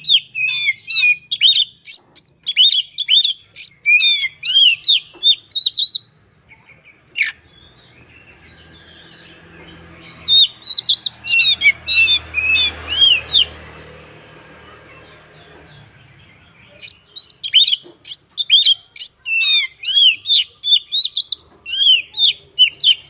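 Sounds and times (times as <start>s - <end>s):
bird singing whistled notes: 0.0s - 13.6s, 15.8s - 23.0s.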